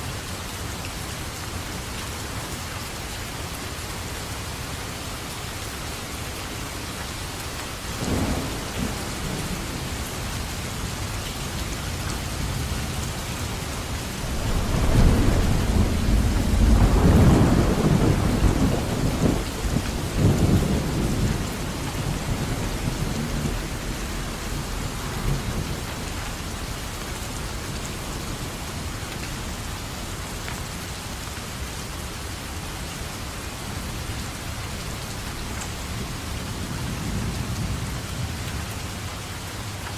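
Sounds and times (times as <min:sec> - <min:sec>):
steady rain falling: 0:00.0 - 0:39.9
thunder rumbling: 0:08.0 - 0:11.0, 0:13.8 - 0:26.6.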